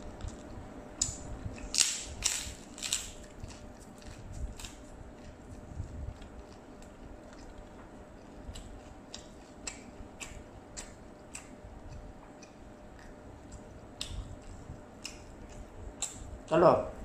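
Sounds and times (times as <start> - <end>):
person chewing food: 0.0 - 16.3
wet mouth clicks and smacks: 8.5 - 16.2.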